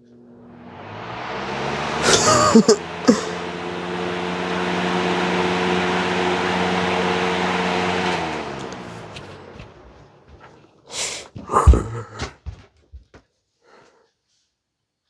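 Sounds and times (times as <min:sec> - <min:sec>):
box fan motor hum: 0:00.0 - 0:10.6.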